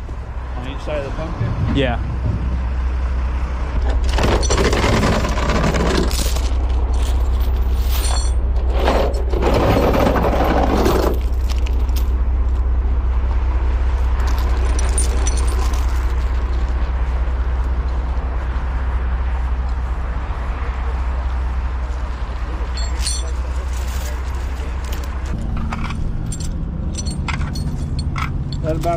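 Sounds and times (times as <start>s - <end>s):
truck engine idling: 0.0s - 28.9s
chains rattling and clinking: 3.9s - 12.2s, 14.2s - 16.7s, 22.6s - 28.9s.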